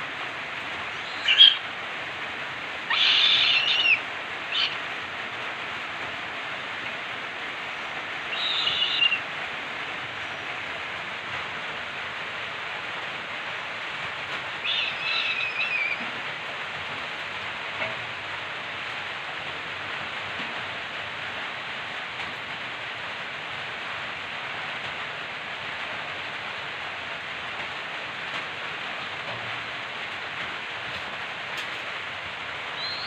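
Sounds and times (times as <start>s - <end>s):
steady hiss: 0.0s - 33.0s
harsh rasping bird calls: 0.9s - 1.6s, 2.9s - 4.8s, 8.3s - 9.2s, 14.6s - 16.0s, 32.8s - 33.0s.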